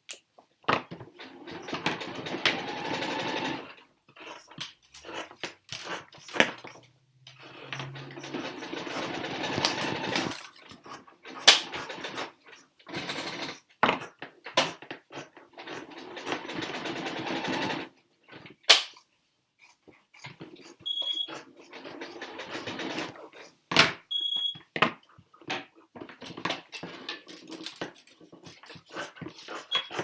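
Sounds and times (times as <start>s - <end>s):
small machine running: 1.2s - 3.7s, 7.4s - 10.3s.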